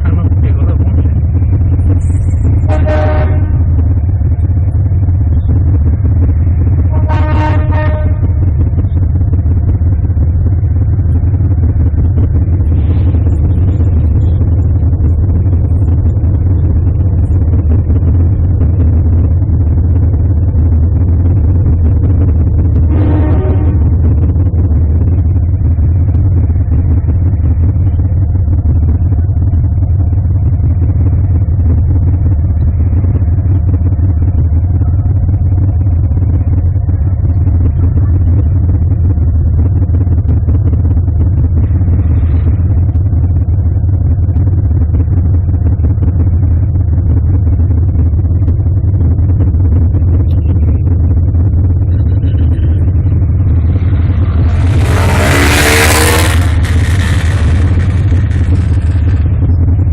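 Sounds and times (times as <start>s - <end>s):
loud burst of noise: 0.0s - 28.0s, 51.8s - 59.9s
car engine and road noise: 0.0s - 59.9s.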